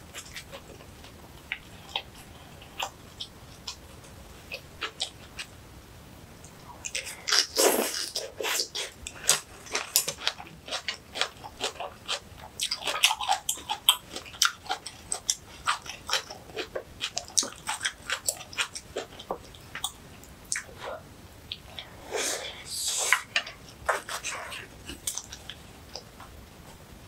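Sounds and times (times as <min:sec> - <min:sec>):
person chewing crunchy food: 0:06.8 - 0:21.9, 0:22.5 - 0:26.2
person slurping: 0:06.9 - 0:09.4, 0:21.7 - 0:25.2.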